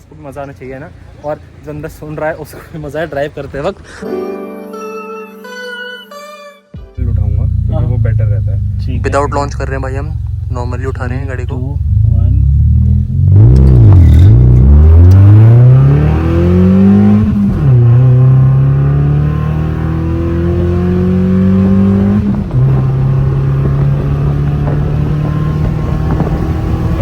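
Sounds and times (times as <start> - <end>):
car engine accelerating through gears: 7.0 - 27.0.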